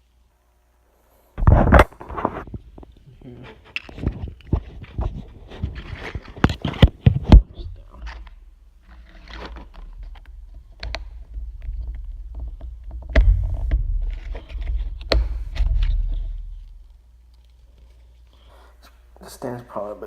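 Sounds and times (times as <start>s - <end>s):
packaging scraping and rustling: 3.6s - 18.4s
plastic clicks and knocks: 9.4s - 16.3s
low rumble of objects knocking table: 9.9s - 16.4s.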